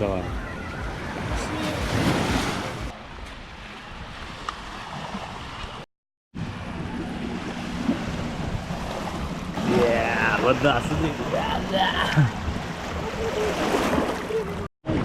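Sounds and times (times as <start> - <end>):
sea surf washing: 0.0 - 5.6, 6.4 - 14.7.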